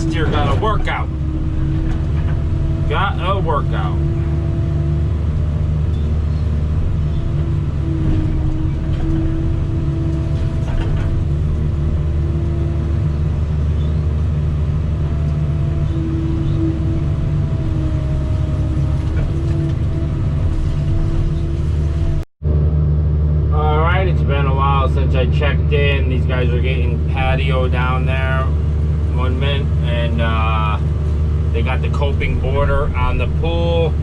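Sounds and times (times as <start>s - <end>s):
diesel engine droning: 0.0s - 34.0s
steady whine: 0.0s - 34.0s.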